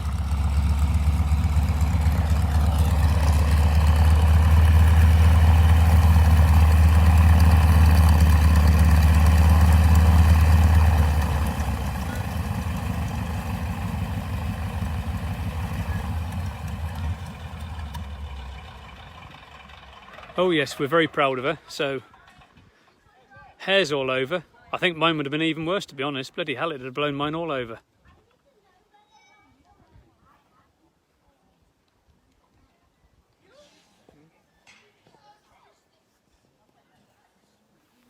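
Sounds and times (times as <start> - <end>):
propeller aircraft engine running: 0.0 - 20.9.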